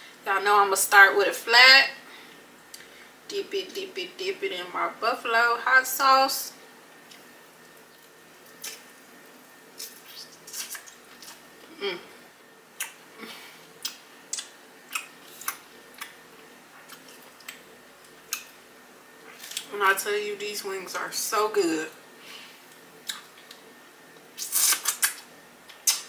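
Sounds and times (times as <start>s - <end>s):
mouth chewing wet smacks: 12.8s - 13.0s, 13.8s - 16.2s, 22.7s - 23.6s.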